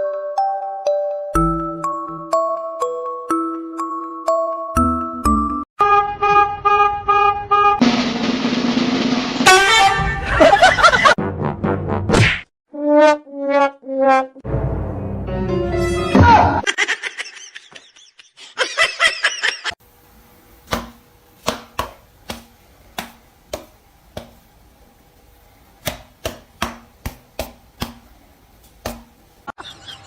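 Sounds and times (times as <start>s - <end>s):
sharp irregular knocks: 25.8s - 28.1s.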